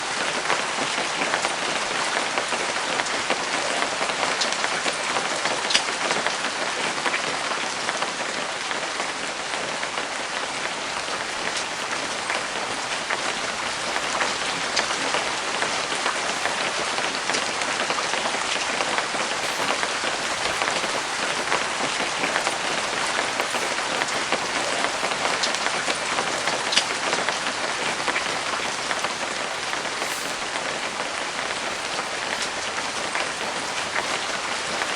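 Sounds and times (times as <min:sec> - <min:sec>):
rain on canvas: 0:10.9 - 0:34.9.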